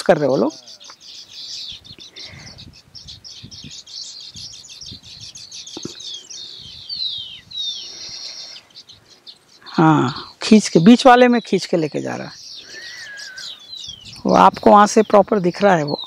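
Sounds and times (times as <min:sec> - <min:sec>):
birds twittering chorus: 0:00.0 - 0:16.0.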